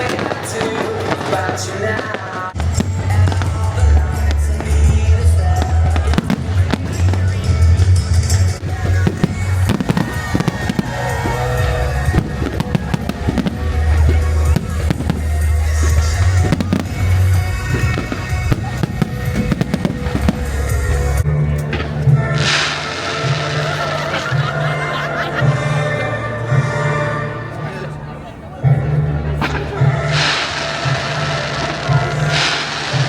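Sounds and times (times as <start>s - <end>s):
fireworks bursting and crackling: 0.0s - 25.1s, 29.3s - 33.0s
music with heavy bass: 2.6s - 27.6s.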